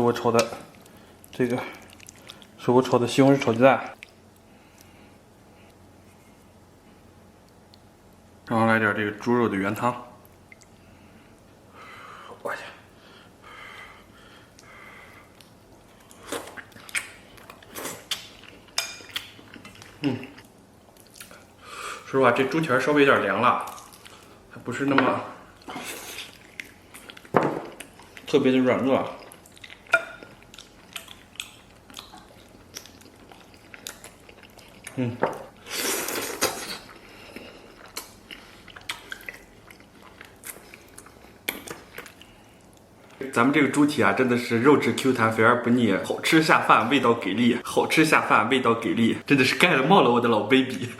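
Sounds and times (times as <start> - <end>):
close chewing with wet smacking: 0.4 - 2.6, 15.3 - 21.5, 25.6 - 28.4, 29.0 - 35.0, 36.4 - 42.9
person eating: 0.7 - 2.6, 14.4 - 22.0, 25.4 - 28.4, 29.0 - 43.2.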